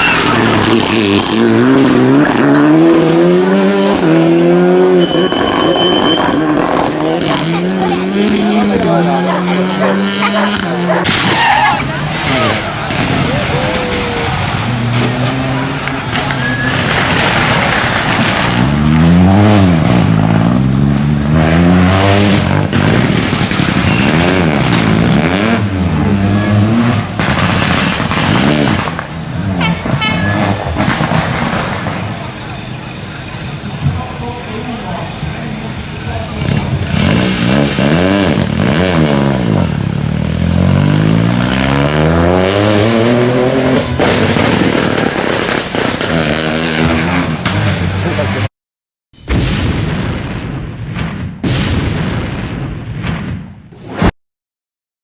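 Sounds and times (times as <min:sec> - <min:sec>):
rally car engine accelerating: 0:00.0 - 0:32.7, 0:33.4 - 0:48.5
steady high whistle: 0:04.9 - 0:06.4.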